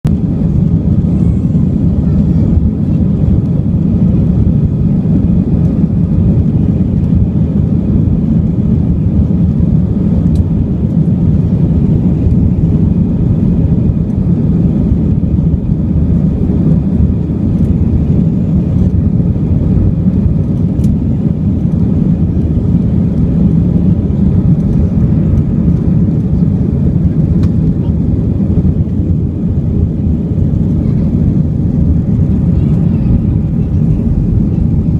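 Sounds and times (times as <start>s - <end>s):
airliner cabin engine drone: 0.0s - 34.9s.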